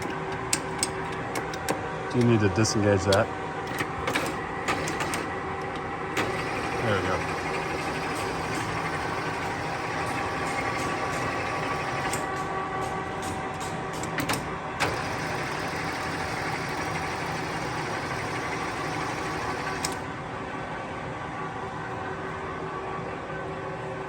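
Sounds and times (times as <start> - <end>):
lathe gear hum: 3.1 - 12.4, 14.3 - 20.1.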